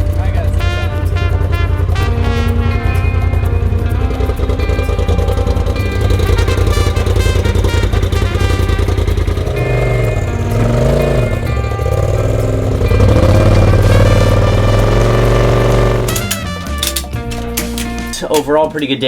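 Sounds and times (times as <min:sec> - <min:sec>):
utility vehicle engine running: 0:00.0 - 0:18.0
background music: 0:00.0 - 0:19.0.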